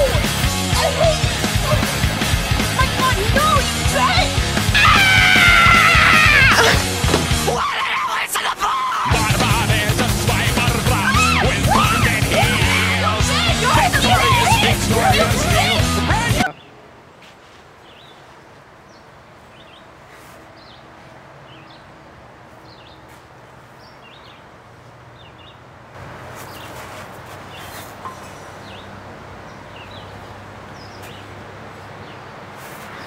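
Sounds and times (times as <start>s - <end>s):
small birds chirping: 17.8s - 18.3s, 18.9s - 25.7s, 26.3s - 33.0s.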